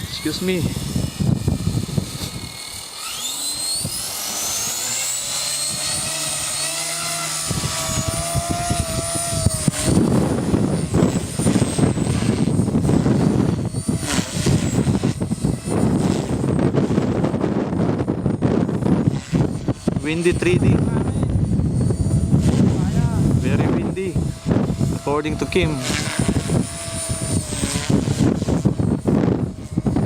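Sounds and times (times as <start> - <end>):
wind buffeting microphone: 0.0 - 2.9, 3.6 - 30.0
rc helicopter whine: 0.0 - 30.0.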